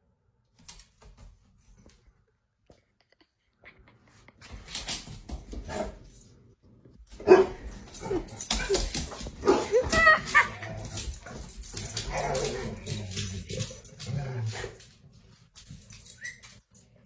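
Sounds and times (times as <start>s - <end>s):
dog barking: 7.2s - 10.6s
dog whining: 7.2s - 14.8s, 16.0s - 16.7s.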